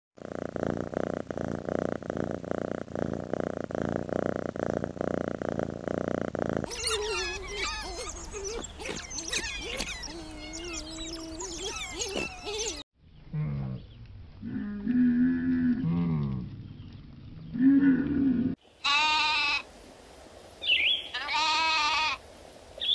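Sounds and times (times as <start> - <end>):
cat purring: 0.2 - 12.8
high chirping and squealing calls: 6.7 - 12.9.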